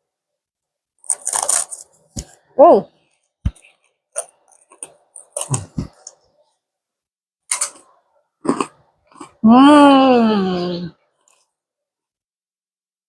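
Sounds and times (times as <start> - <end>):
crunchy food being chewed: 1.0 - 2.3, 3.6 - 6.2, 7.5 - 9.4.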